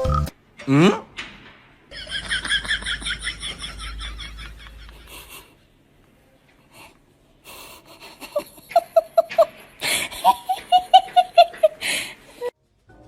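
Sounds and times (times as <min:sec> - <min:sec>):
high-pitched laughter: 0:08.0 - 0:11.8
wheezy gasping breath: 0:11.8 - 0:12.5.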